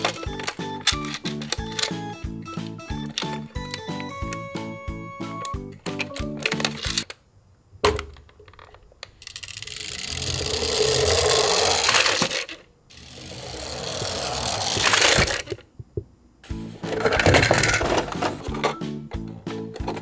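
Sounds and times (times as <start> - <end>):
plastic toy clicks: 0.0 - 2.1, 8.0 - 15.6
toy wheels rolling over wood: 8.6 - 15.7.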